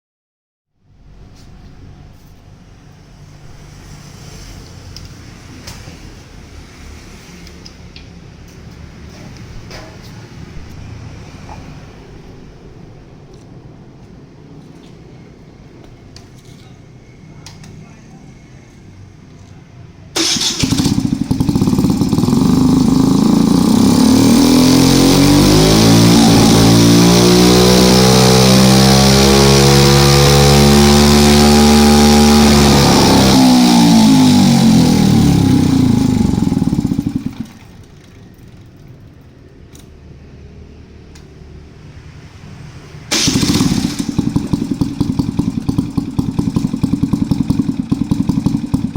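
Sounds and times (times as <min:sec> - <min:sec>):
scooter engine starting and revving: 0:20.2 - 0:39.1, 0:43.1 - 0:48.9.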